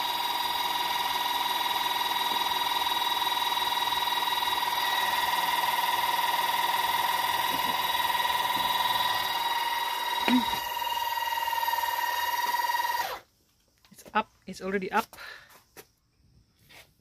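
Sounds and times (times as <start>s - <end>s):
electric car jack motor whining: 0.0s - 13.2s.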